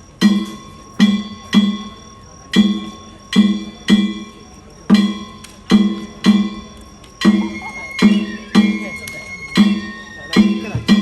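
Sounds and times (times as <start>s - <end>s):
big drum strikes: 9.6s - 11.0s.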